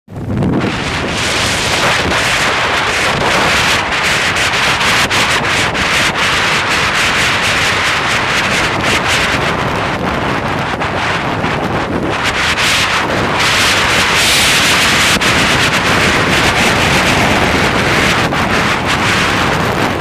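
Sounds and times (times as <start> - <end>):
wind buffeting microphone: 0.1 - 20.0
wind noise crackles: 0.1 - 20.0.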